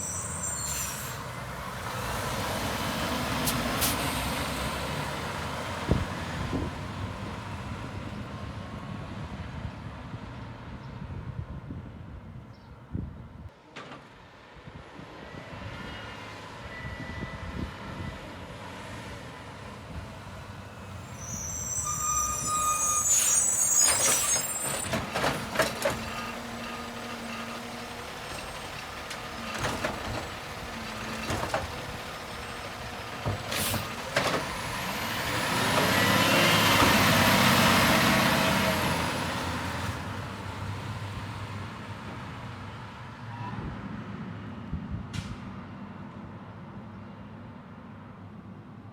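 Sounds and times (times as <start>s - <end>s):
air brake hiss: 0.0s - 1.4s, 21.0s - 24.9s
diesel engine running: 19.6s - 41.7s.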